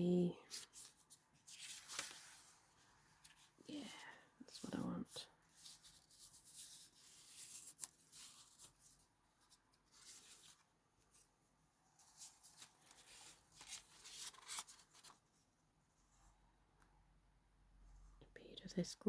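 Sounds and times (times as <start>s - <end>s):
paper pages rustling: 0.5s - 3.6s, 5.4s - 11.3s, 11.9s - 15.4s.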